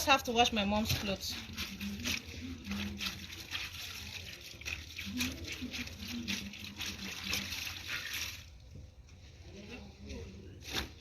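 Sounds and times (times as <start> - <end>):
wet fabric rubbed and squeezed: 0.0 - 8.8
water splashing and sloshing: 0.2 - 8.9.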